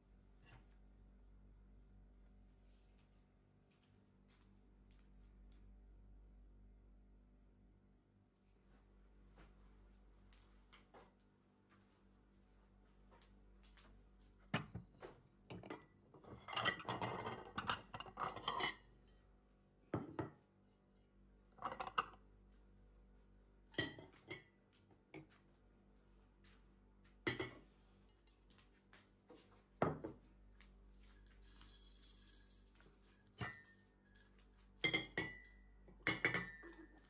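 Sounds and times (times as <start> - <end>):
ceramic plates clinking: 15.5 - 18.8, 21.6 - 22.2, 31.5 - 37.0
dishes knocking on wooden table: 29.8 - 30.2.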